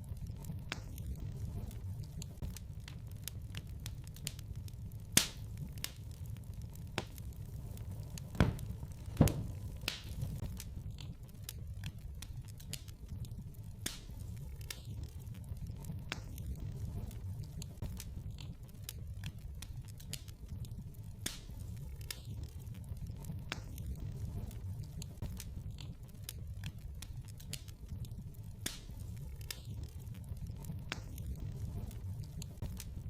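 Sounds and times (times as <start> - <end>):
fire pops and snaps: 0.0 - 33.0
low rumble of flames: 0.0 - 33.0.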